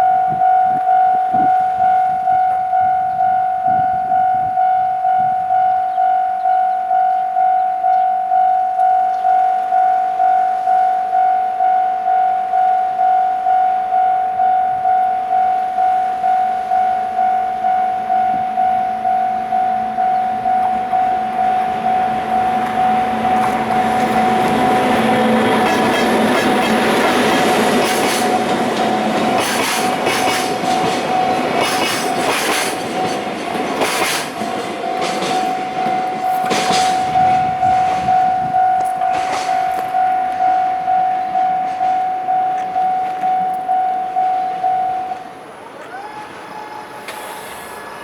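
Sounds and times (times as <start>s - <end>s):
electric locomotive approaching: 0.0s - 48.0s
level crossing warning bell: 0.0s - 48.0s
train wheels clicking over rail joints: 20.3s - 48.0s.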